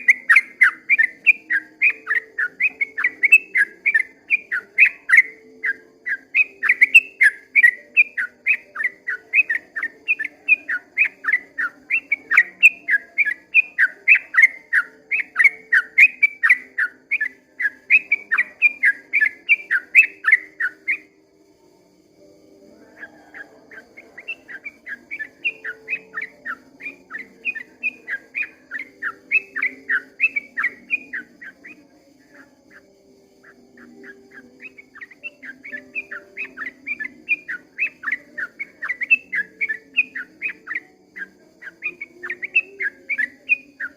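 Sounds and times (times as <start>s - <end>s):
bird singing rapid chirps: 0.0s - 21.2s, 22.2s - 43.9s.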